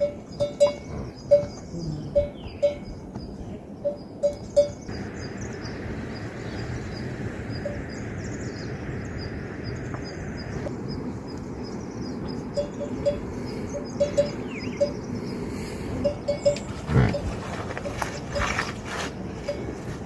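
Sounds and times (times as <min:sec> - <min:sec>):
livestock bells clinking: 0:00.0 - 0:03.0, 0:03.8 - 0:04.9, 0:12.4 - 0:15.2, 0:16.0 - 0:20.0.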